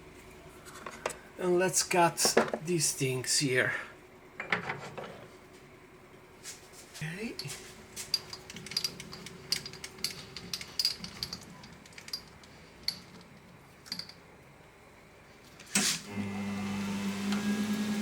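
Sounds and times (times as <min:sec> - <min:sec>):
machine motor humming: 0:16.1 - 0:18.0.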